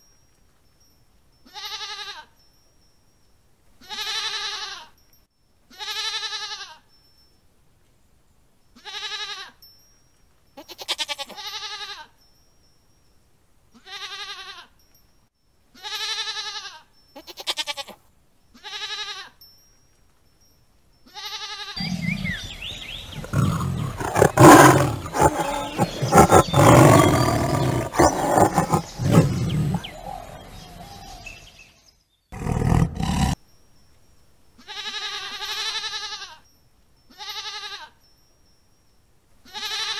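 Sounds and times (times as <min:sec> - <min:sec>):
goats bleating: 0:21.2 - 0:29.9.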